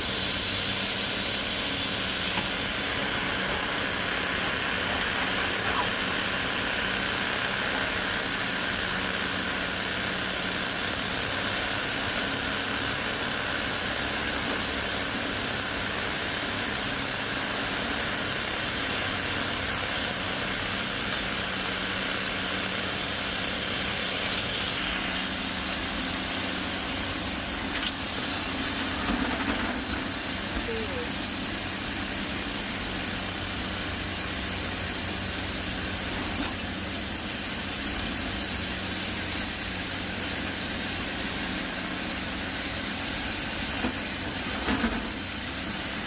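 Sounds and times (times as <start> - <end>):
heavy diesel engine running: 0.0 - 46.0
high hiss: 20.6 - 46.0.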